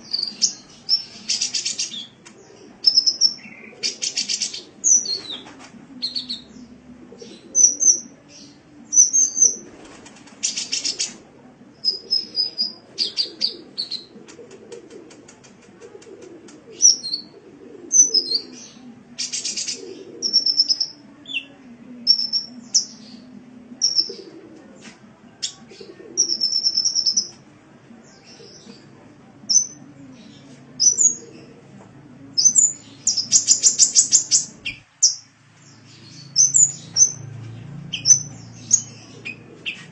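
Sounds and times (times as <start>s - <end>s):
bird chirps and trills: 17.9s - 20.9s, 23.8s - 24.2s, 32.4s - 39.9s.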